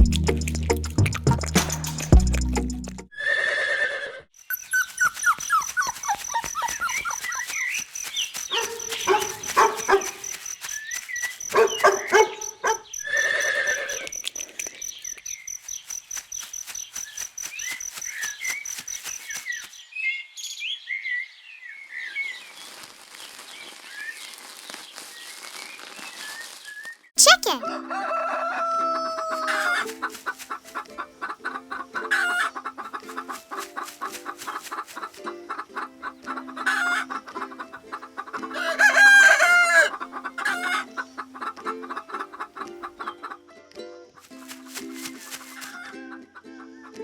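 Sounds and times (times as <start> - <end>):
small bird chirps: 4.4 - 22.6
dog barking: 8.5 - 10.2, 11.5 - 12.9.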